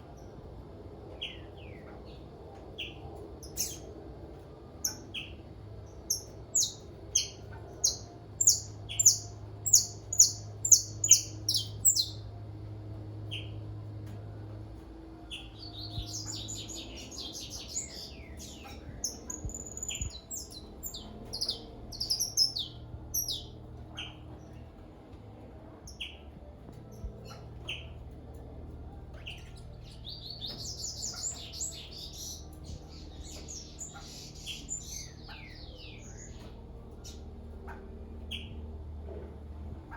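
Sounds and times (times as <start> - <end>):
high twittering birdsong: 1.0 - 12.5, 13.1 - 14.0, 15.2 - 24.8, 25.6 - 38.9.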